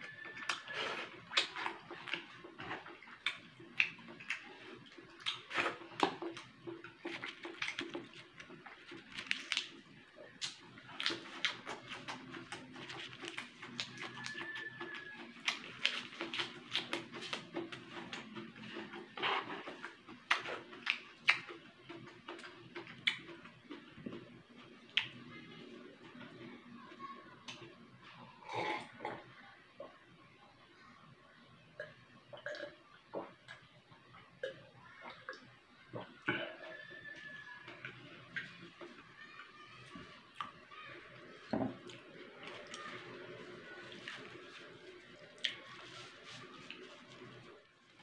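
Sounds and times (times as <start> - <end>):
person chewing with mouth open: 0.1 - 24.2, 41.8 - 47.4
wet lip smacks and mouth clicks: 5.2 - 6.5, 19.8 - 23.4.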